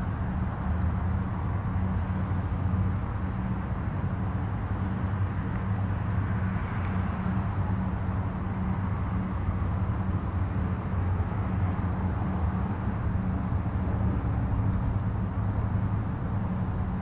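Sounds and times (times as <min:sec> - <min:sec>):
distant highway traffic rumble: 0:00.0 - 0:17.0.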